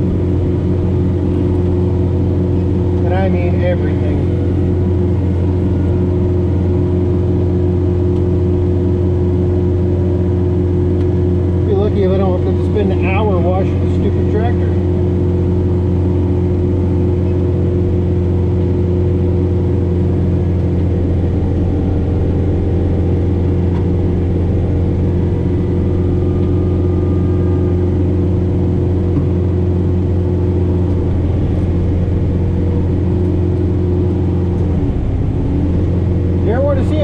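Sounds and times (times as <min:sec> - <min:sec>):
snowblower working through snow: 0:00.0 - 0:37.0
tractor diesel engine running: 0:00.0 - 0:37.0.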